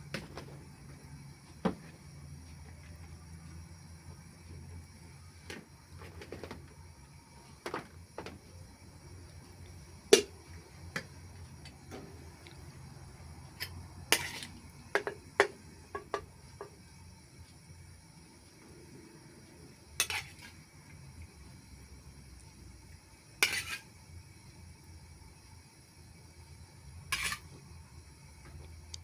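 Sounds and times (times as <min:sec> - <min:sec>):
kitchen utensils clinking: 0:27.2 - 0:27.5.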